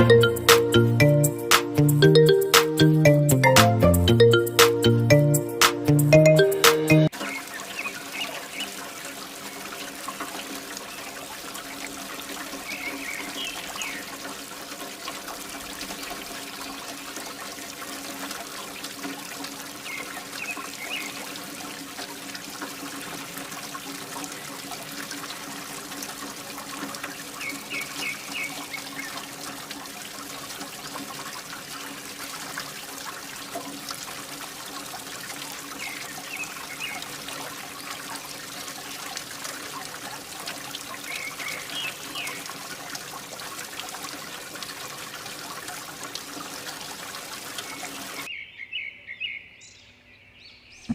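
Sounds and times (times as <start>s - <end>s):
water pouring and trickling: 0.0s - 48.3s.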